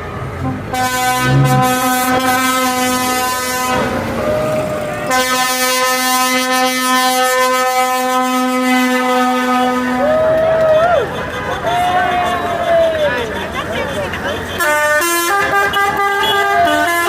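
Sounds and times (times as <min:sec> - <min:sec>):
vehicle air horn blasts: 0:00.4 - 0:10.2, 0:14.5 - 0:17.0.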